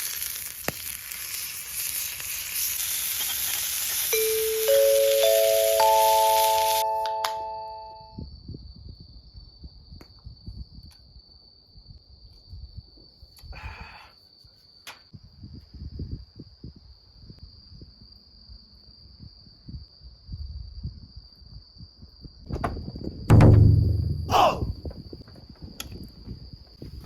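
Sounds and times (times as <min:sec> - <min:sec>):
crickets trilling: 0:08.3 - 0:23.2
low rustling and knocks: 0:22.5 - 0:26.4.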